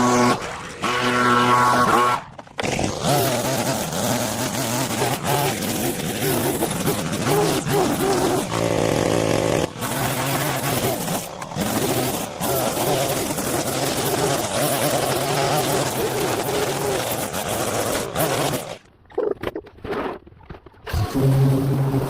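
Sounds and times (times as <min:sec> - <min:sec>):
small gasoline engine running: 0:00.0 - 0:18.9.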